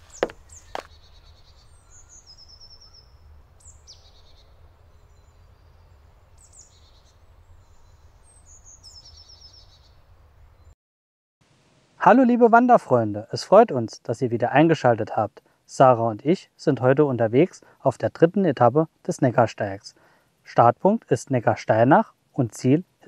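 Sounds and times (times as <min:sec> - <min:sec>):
crunching footstep: 0:00.0 - 0:01.0
low outdoor rumble: 0:00.0 - 0:08.8
faint birds singing: 0:00.0 - 0:10.8.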